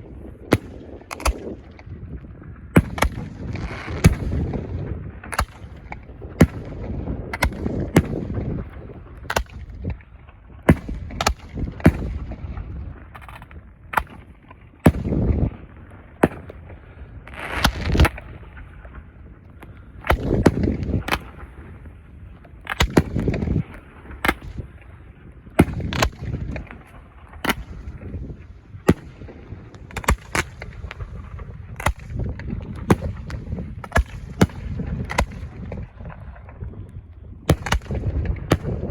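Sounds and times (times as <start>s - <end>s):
fireworks sharp bangs: 0.0s - 19.0s, 20.0s - 22.0s, 22.6s - 36.6s, 37.5s - 38.9s
deep fireworks booms: 0.0s - 38.9s.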